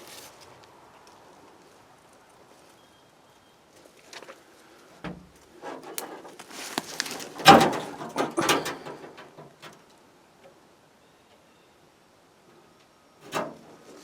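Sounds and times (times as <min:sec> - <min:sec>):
dry brush rustling and crackling: 0:00.0 - 0:08.8, 0:13.5 - 0:14.0
twigs snapping: 0:06.0 - 0:07.5.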